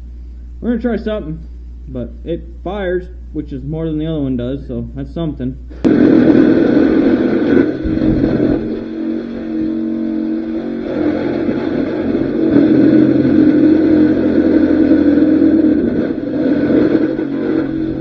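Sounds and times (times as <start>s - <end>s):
car engine revving: 5.8s - 18.0s.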